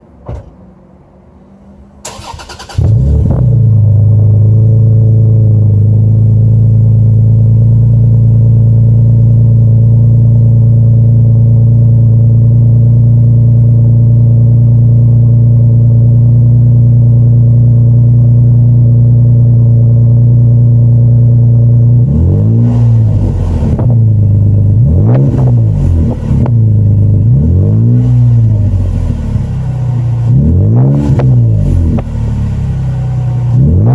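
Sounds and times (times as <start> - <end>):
car engine idling: 0.8 - 22.1, 22.7 - 33.9
engine revving: 2.0 - 5.8, 21.8 - 33.9.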